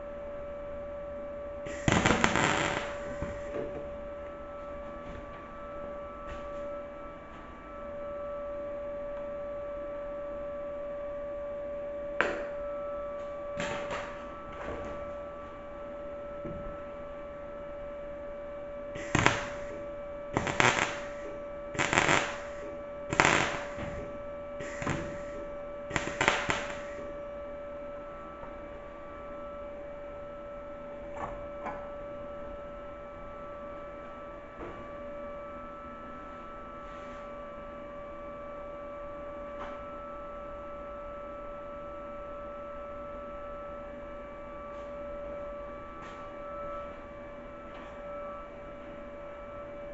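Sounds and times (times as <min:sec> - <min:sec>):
welder hum: 0:01.6 - 0:04.7, 0:18.8 - 0:27.2
welder crackling bursts: 0:01.7 - 0:03.5, 0:19.0 - 0:19.8, 0:20.4 - 0:24.0, 0:24.6 - 0:27.0.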